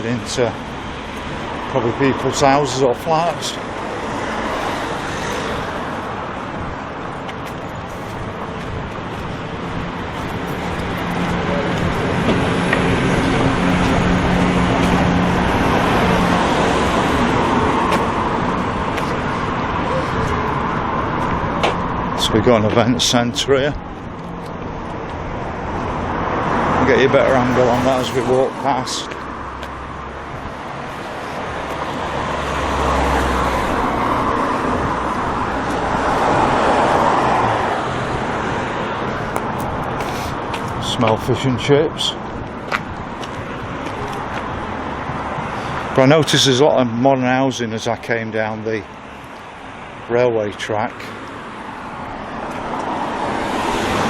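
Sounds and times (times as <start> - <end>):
vehicle engine hum: 0.0 - 47.0, 47.6 - 54.0
rushing tyre noise: 0.0 - 54.0
low engine hum: 3.6 - 23.1.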